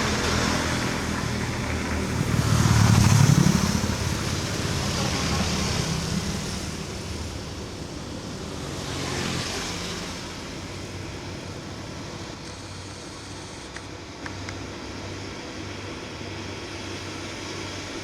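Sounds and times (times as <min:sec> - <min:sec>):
wind noise: 0:00.0 - 0:12.4
road noise: 0:00.0 - 0:18.0
truck engine labouring: 0:00.0 - 0:18.0.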